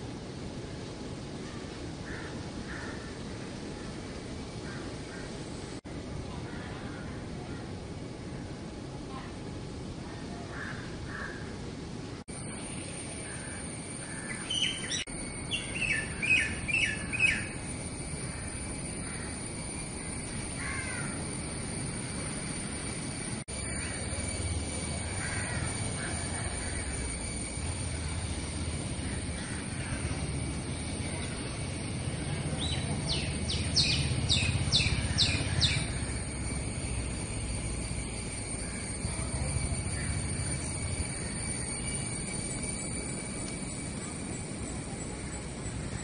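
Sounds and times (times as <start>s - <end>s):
steady outdoor rumble: 0.0s - 46.0s
bird chirping: 12.5s - 17.6s, 32.6s - 36.1s.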